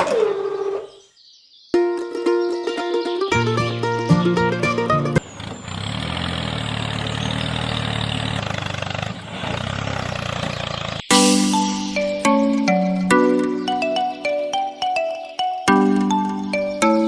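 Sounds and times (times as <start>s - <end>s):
music: 1.8s - 5.2s, 11.1s - 17.0s.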